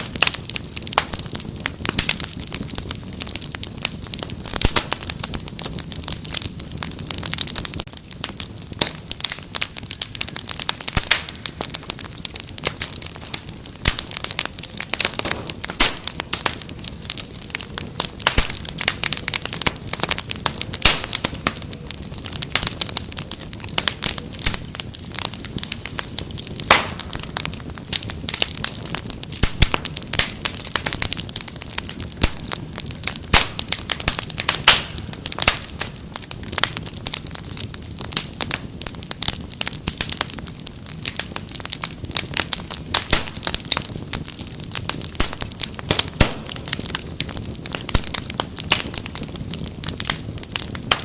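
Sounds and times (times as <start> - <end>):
wood fire crackling and snapping: 0.0 - 51.0.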